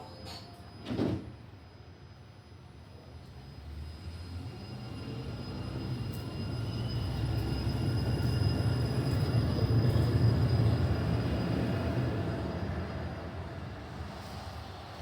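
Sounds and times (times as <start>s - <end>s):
light rail train rumbling: 0.0s - 15.0s.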